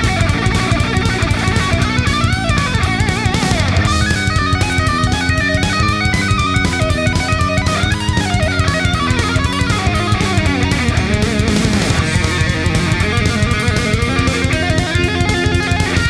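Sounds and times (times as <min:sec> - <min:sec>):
distorted electric guitar: 0:00.0 - 0:16.0
rock music: 0:00.0 - 0:16.0
steady drum beat: 0:00.0 - 0:16.0.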